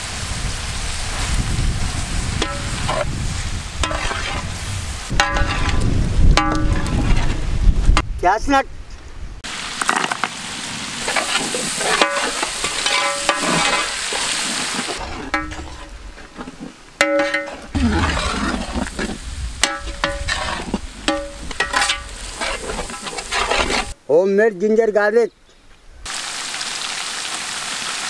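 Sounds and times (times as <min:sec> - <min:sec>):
vegetables sizzling in hot oil: 0:00.0 - 0:06.6, 0:09.4 - 0:24.0, 0:26.1 - 0:28.0
metal ladle scraping pot: 0:02.4 - 0:03.2, 0:03.8 - 0:04.5, 0:05.1 - 0:07.5, 0:11.0 - 0:24.0.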